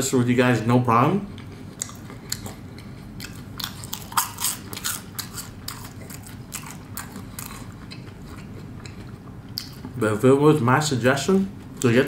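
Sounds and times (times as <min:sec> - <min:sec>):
crisp chewing crunches: 0:01.4 - 0:10.0.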